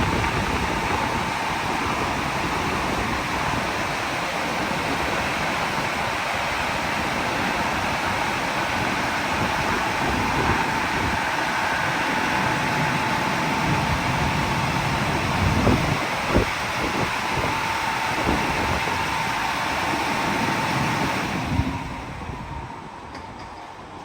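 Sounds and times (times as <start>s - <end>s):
car wash rushing hiss: 0.0s - 22.8s
thin steady whine: 0.0s - 24.0s.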